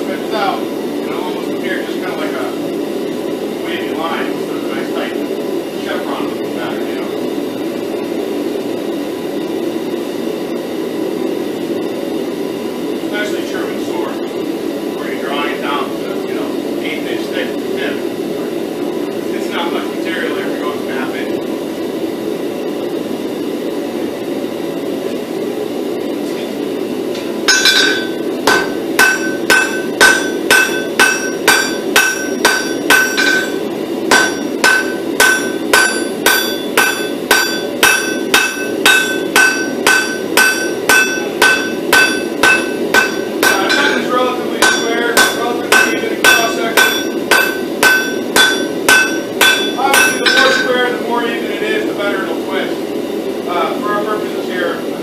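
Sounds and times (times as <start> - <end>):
steady low hum: 0.0 - 55.0
hammer striking steel on anvil: 27.2 - 50.8.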